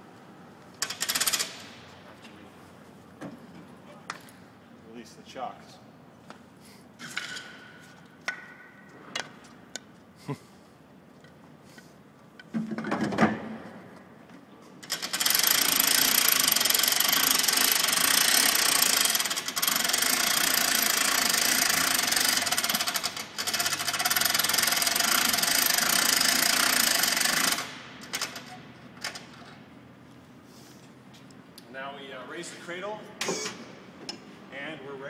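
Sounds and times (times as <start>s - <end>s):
electric winch running with rattle: 0.8s - 1.8s, 14.8s - 29.6s.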